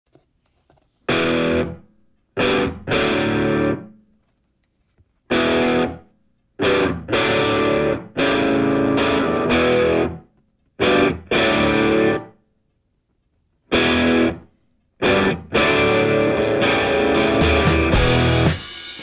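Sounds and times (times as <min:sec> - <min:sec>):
distorted electric guitar chords: 0:01.1 - 0:01.8, 0:02.4 - 0:03.9, 0:05.3 - 0:06.0, 0:06.6 - 0:10.2, 0:10.8 - 0:12.3, 0:13.7 - 0:14.4, 0:15.0 - 0:18.7.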